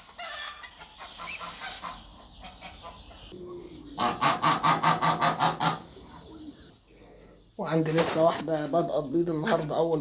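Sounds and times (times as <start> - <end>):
geese honking: 0.0 - 3.3, 4.0 - 5.9.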